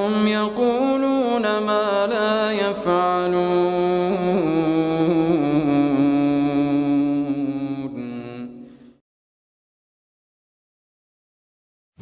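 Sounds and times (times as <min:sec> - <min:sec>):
man chanting recitation: 0:00.0 - 0:08.6.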